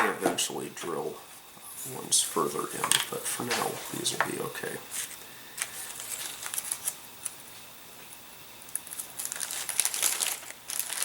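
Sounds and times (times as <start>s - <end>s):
crinkling: 5.0s - 7.4s, 8.7s - 11.0s.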